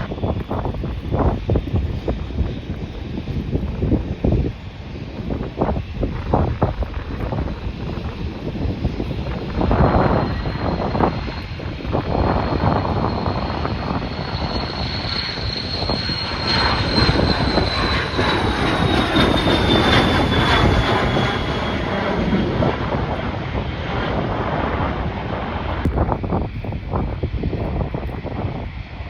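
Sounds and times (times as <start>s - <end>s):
airliner engines rumbling and whining: 0.0s - 29.0s
wind buffeting microphone: 0.0s - 29.0s.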